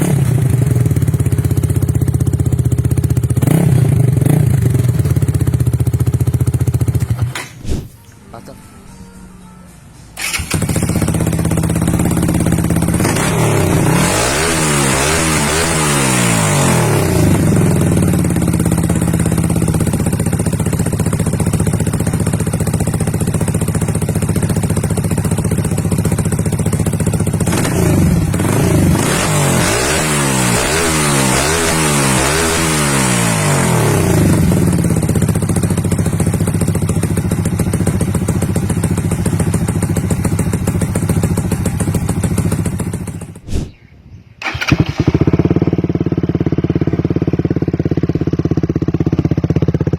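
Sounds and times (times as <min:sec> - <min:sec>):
motorcycle engine idling: 0:00.3 - 0:07.4, 0:10.2 - 0:13.9, 0:17.2 - 0:28.4, 0:34.0 - 0:43.4, 0:44.2 - 0:49.9.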